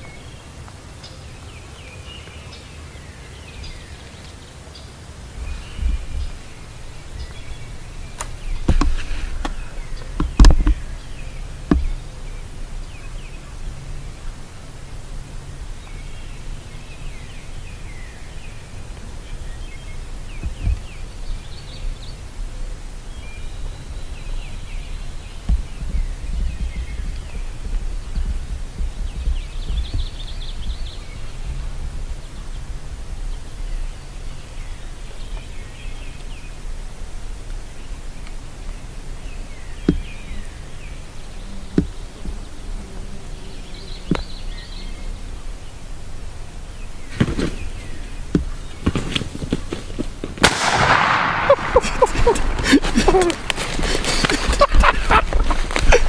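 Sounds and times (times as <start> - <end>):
songbirds chirping: 0.0 - 14.3, 37.6 - 49.3, 50.6 - 56.0.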